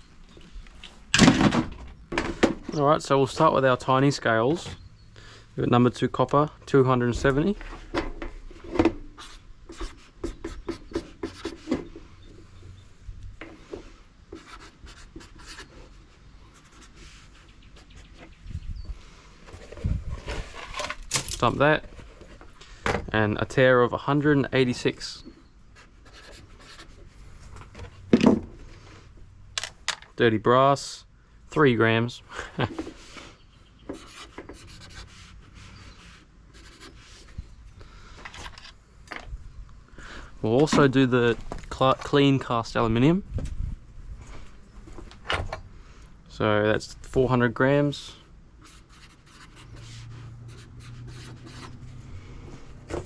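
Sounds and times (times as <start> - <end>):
soft scratching and rubbing: 14.4 - 18.4, 33.0 - 37.6, 48.6 - 52.0.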